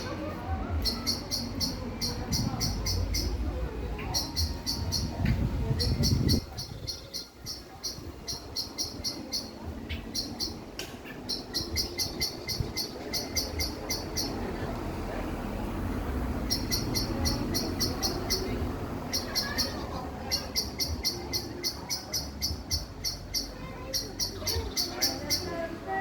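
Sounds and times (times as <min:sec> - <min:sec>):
steady low rumble: 0:00.0 - 0:21.6
bird calling in rapid high notes: 0:16.5 - 0:25.6.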